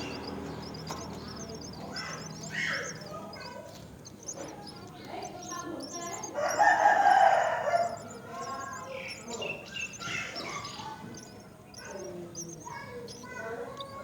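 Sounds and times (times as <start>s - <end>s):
birds chirping: 0.0s - 14.0s
harsh low bird calls: 0.0s - 14.0s.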